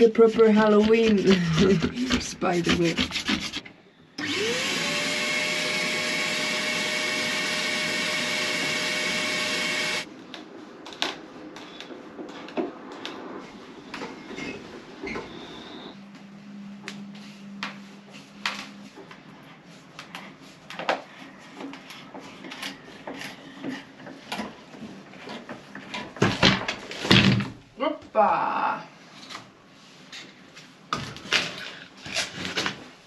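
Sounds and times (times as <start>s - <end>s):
vacuum cleaner running: 4.2s - 10.1s.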